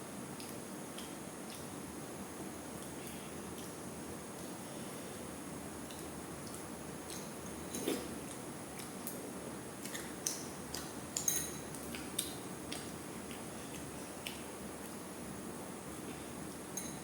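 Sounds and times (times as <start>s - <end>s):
tableware clicking and clinking: 11.2s - 11.8s, 16.8s - 17.0s.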